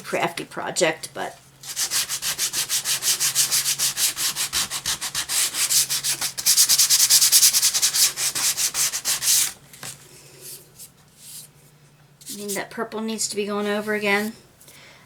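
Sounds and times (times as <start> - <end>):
sandpaper rubbing on wood: 1.6 - 9.5.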